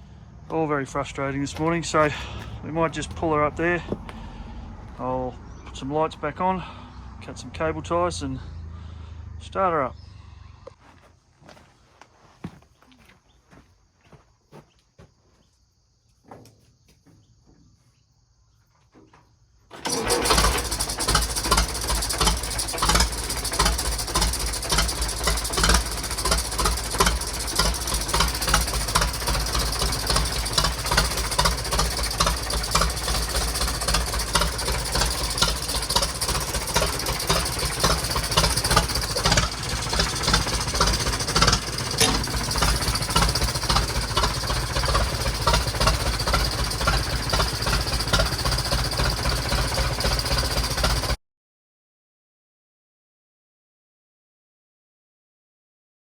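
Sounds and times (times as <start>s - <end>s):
tractor engine starting and running: 0.0s - 11.0s, 18.9s - 51.2s.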